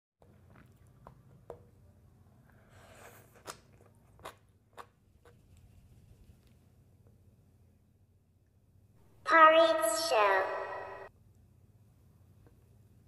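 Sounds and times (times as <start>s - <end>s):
soft eating crunches: 3.0s - 5.4s.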